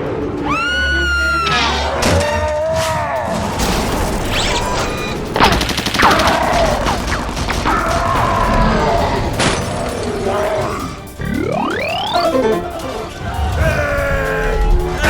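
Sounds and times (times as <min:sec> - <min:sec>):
cartoon gunfire and blasts: 0:03.6 - 0:09.6.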